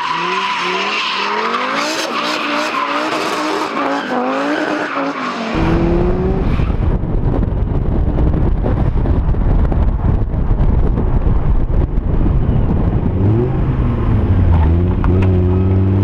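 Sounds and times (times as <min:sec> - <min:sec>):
car engine revving: 0:00.0 - 0:06.9
wind rumble on microphone: 0:05.5 - 0:16.0.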